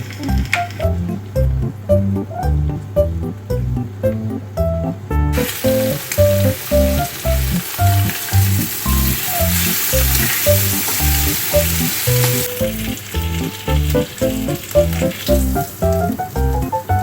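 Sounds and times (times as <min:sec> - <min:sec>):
background music with steady beat: 0:00.3 - 0:17.0
food sizzling in a frying pan: 0:05.4 - 0:17.0.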